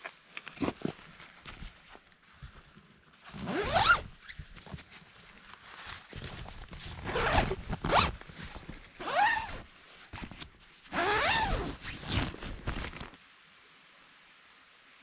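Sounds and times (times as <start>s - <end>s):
zipper pulled back and forth: 0.5s - 1.6s, 3.3s - 4.4s, 6.2s - 13.2s.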